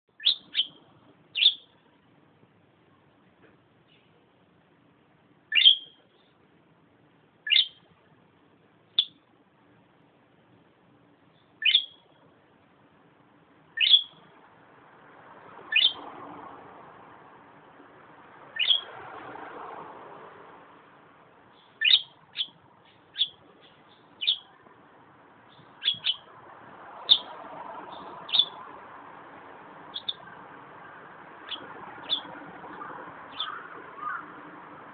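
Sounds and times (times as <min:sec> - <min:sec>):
budgerigar chirping: 0:00.2 - 0:01.8, 0:05.5 - 0:06.0, 0:07.4 - 0:07.9, 0:09.0 - 0:09.2, 0:11.6 - 0:12.1, 0:13.8 - 0:14.3, 0:15.7 - 0:16.0, 0:18.6 - 0:18.9, 0:21.5 - 0:24.6, 0:25.5 - 0:26.3, 0:27.0 - 0:27.3, 0:27.9 - 0:28.6, 0:29.9 - 0:30.3, 0:31.4 - 0:34.3.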